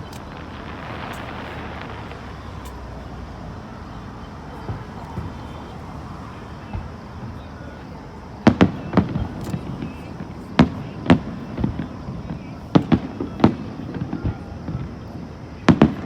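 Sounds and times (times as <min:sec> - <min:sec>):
faint fireworks pops: 0:00.0 - 0:16.0
fireworks bangs: 0:00.0 - 0:16.0.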